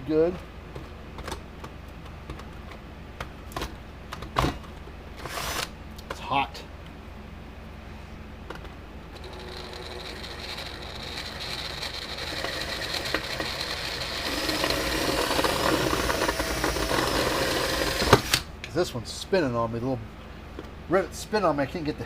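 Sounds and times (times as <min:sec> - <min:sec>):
electric drill boring into metal: 0:09.2 - 0:18.5.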